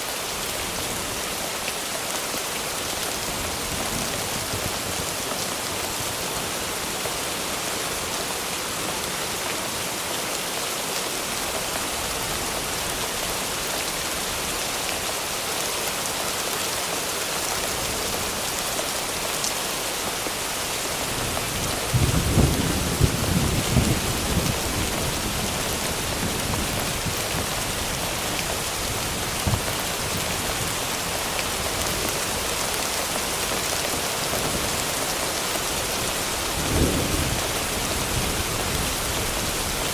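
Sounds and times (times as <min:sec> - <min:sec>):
heavy rain: 0:00.0 - 0:39.9
thunderclap cracking and rumbling: 0:21.1 - 0:28.0, 0:36.4 - 0:39.8.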